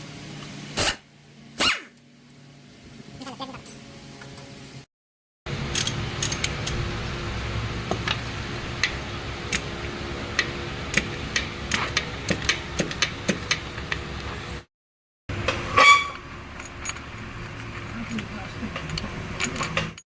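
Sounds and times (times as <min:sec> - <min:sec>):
steady mechanical hum: 0:00.0 - 0:04.9, 0:05.5 - 0:14.7, 0:15.3 - 0:20.0
metal tools clicking on parts: 0:05.7 - 0:06.8, 0:16.5 - 0:17.1, 0:17.8 - 0:20.0.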